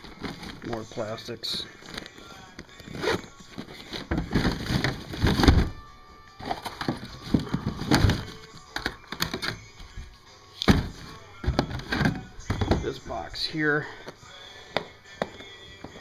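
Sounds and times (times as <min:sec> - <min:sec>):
plastic bags rustling: 0:00.0 - 0:08.8.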